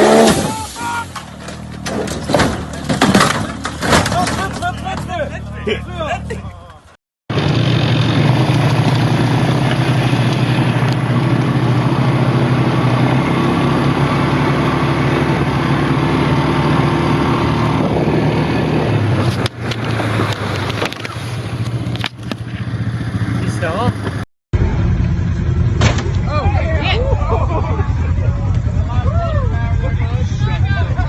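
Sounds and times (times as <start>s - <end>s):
off-road vehicle engine running hard: 7.3s - 31.0s.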